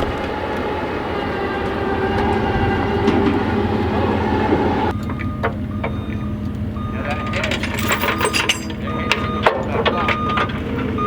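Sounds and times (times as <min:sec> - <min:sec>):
electric winch running under load: 0:00.0 - 0:05.0.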